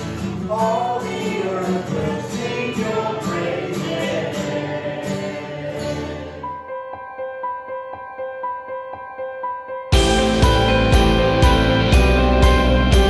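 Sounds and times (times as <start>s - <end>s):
worship band and singers: 0.0s - 6.4s
steady drum beat: 10.0s - 13.0s.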